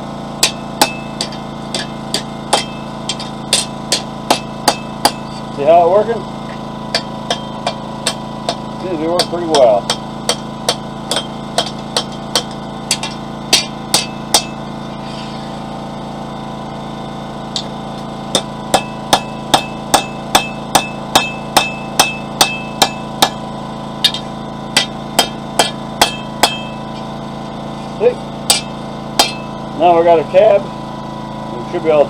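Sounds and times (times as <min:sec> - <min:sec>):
generator humming: 0:00.0 - 0:32.0
hammer striking hot steel: 0:00.4 - 0:05.6, 0:06.4 - 0:15.6, 0:17.5 - 0:27.1, 0:28.4 - 0:29.6.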